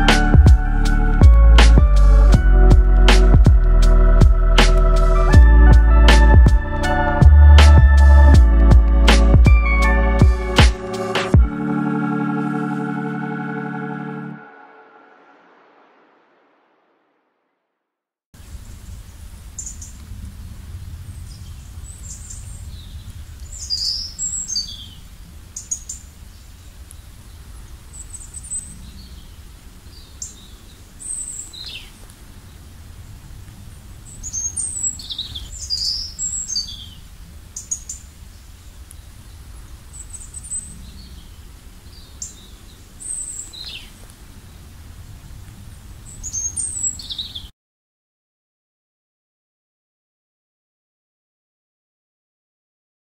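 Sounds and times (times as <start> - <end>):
steady low rumble: 0.0 - 11.9
songbirds chirping and whistling: 21.1 - 32.6, 34.1 - 44.7, 46.0 - 47.5.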